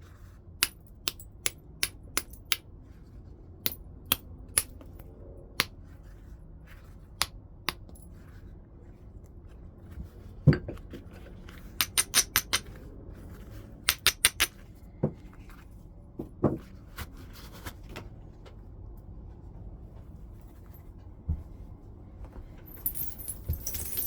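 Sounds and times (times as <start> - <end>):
knapping tool striking stone: 0.6 - 2.6, 11.8 - 12.7, 13.9 - 14.5.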